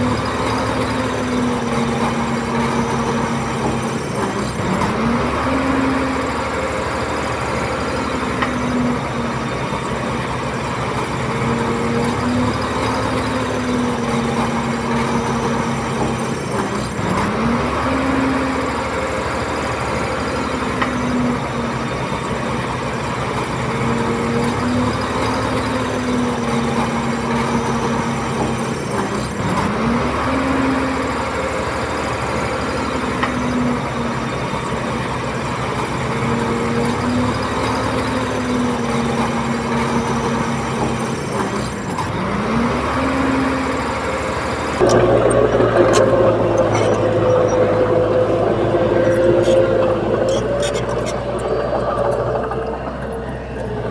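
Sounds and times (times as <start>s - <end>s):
bulldozer diesel engine under load: 0.0s - 53.9s.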